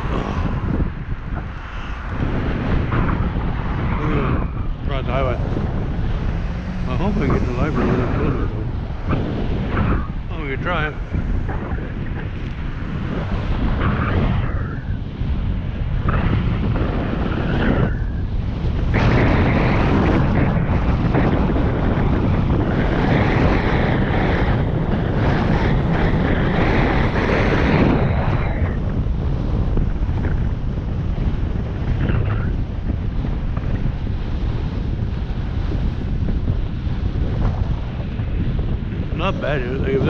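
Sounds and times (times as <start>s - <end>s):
steady low rumble: 0.0s - 40.0s
wind buffeting microphone: 0.0s - 40.0s.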